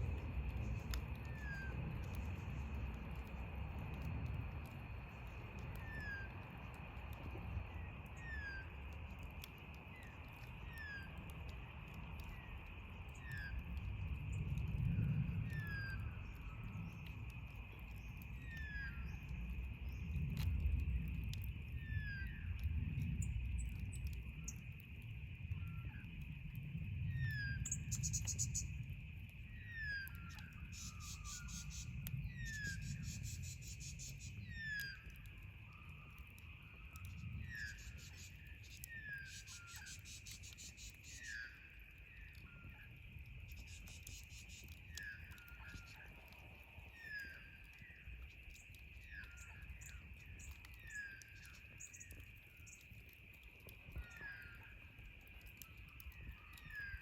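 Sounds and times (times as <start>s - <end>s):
rapid high insect trilling: 30.7s - 34.6s.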